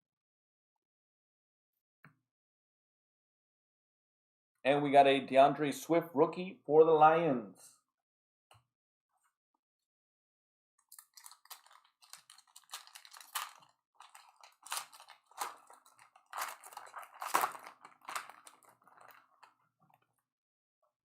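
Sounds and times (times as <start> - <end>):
wrapper crinkling and tearing: 10.9 - 19.6
cards being handled: 11.0 - 19.5.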